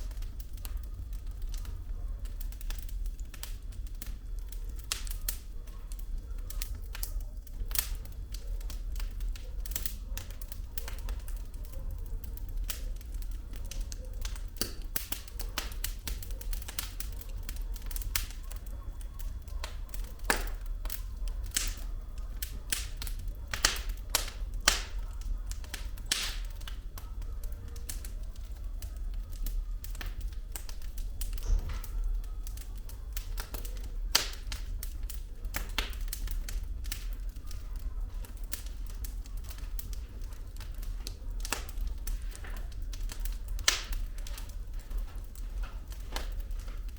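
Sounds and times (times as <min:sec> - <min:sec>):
firewood crackling and popping: 0:00.0 - 0:46.9.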